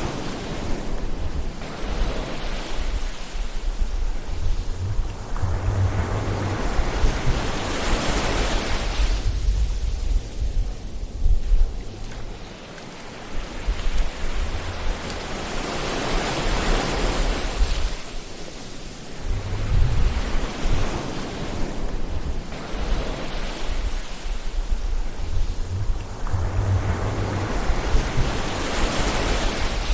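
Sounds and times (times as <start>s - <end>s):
ocean waves breaking: 0.0s - 29.9s
low uneven rumble: 3.3s - 8.4s, 19.1s - 20.8s, 23.8s - 29.9s.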